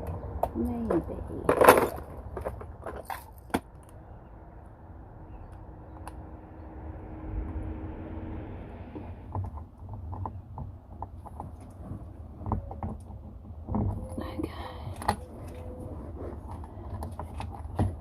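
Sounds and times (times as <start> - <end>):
objects knocking and clicking: 0.0 - 4.0, 9.3 - 18.0
low rumble: 3.8 - 11.0
faint hum: 3.9 - 9.6.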